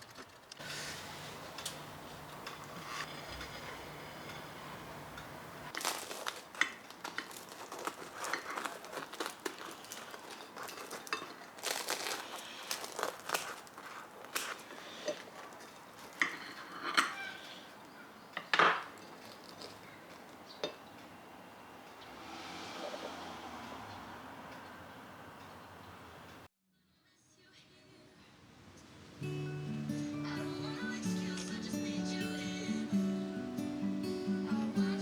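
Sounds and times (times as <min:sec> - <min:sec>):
dishes and utensils clinking: 0:01.6 - 0:17.7
rustling: 0:05.6 - 0:17.9, 0:18.8 - 0:20.7.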